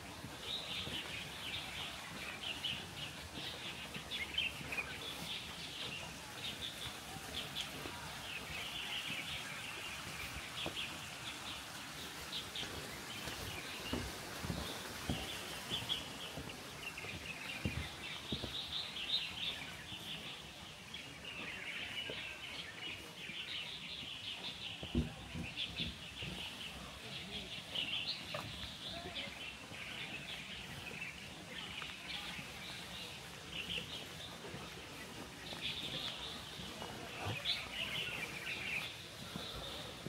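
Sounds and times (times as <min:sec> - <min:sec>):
outdoor background noise: 0:00.0 - 0:40.0
small birds chirping: 0:00.0 - 0:40.0.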